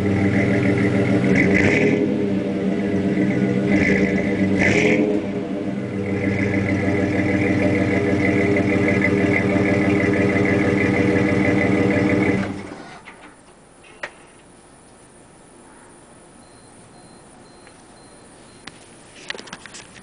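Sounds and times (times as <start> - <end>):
pickup engine idling: 0.0 - 13.4.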